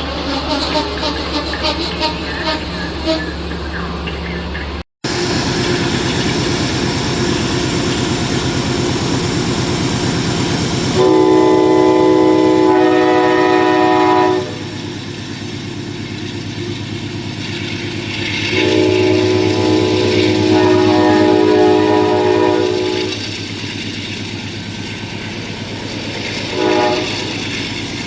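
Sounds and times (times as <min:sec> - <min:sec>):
train rumbling: 0:00.0 - 0:28.0
train air horn chord: 0:00.4 - 0:03.4, 0:11.0 - 0:14.8, 0:18.5 - 0:23.2, 0:26.5 - 0:27.4.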